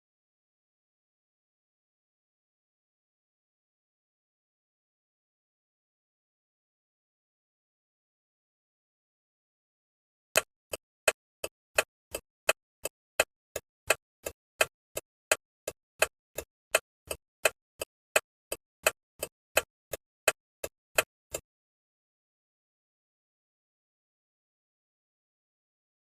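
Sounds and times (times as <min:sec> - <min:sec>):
turn signal ticking: 0:10.4 - 0:21.4.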